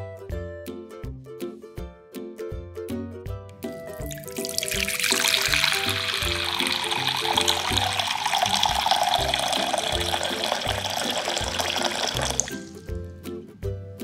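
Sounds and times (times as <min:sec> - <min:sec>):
background music with beat: 0:00.0 - 0:14.0
water pouring into glass bowl: 0:04.0 - 0:12.9.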